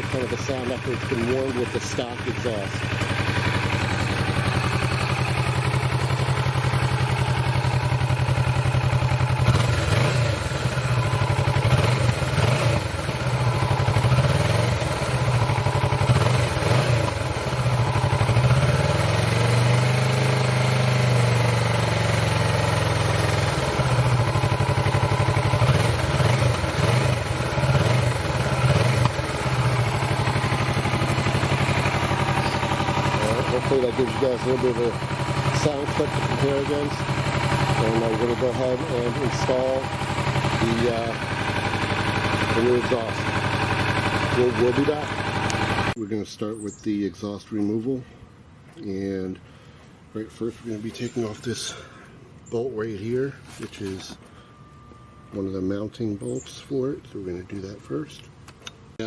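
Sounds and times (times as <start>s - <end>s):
motorcycle idling with throttle blips: 0.0s - 46.0s, 47.8s - 59.0s.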